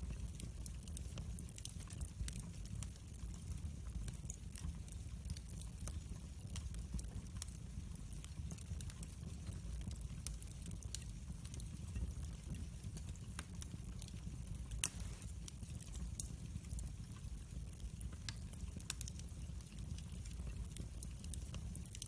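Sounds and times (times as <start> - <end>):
wood fire crackling: 0.0 - 22.0
fire pop: 14.7 - 15.4.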